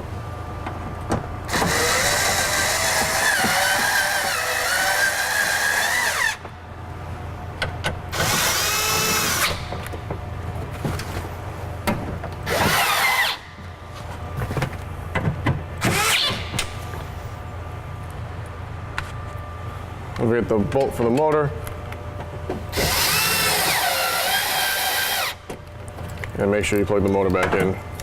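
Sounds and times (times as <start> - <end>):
power drill motor whine: 1.5 - 6.4, 8.1 - 9.7, 12.4 - 13.6, 15.8 - 16.6, 22.7 - 25.4.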